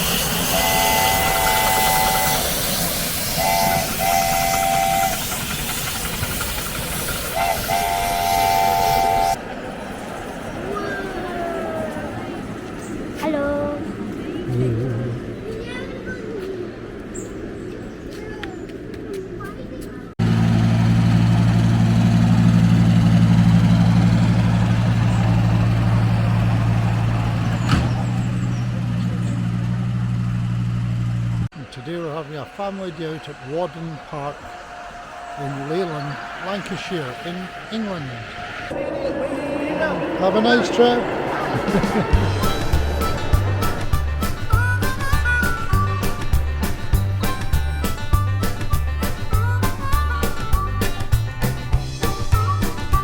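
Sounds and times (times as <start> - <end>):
locomotive chime whistle: 0.0 - 9.5, 31.6 - 38.7
steam hiss and rumble: 0.0 - 10.0
locomotive diesel engine running: 0.0 - 10.6, 20.2 - 53.0.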